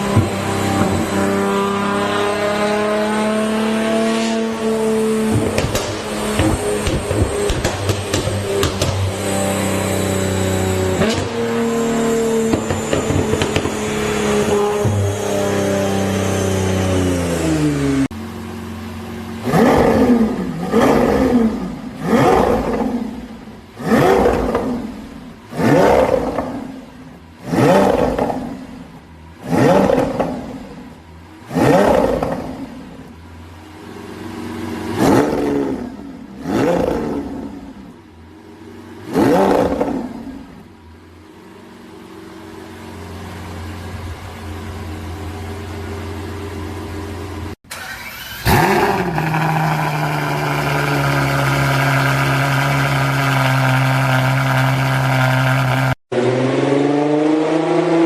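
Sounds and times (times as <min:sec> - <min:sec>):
car engine revving: 0:00.0 - 0:58.0
car engine idling: 0:16.0 - 0:25.6, 0:39.8 - 0:55.9.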